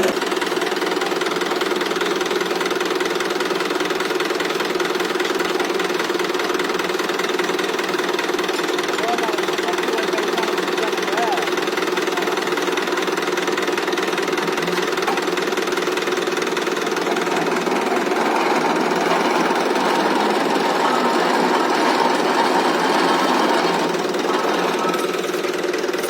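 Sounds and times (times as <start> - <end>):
diesel tractor engine knocking: 0.0 - 26.0.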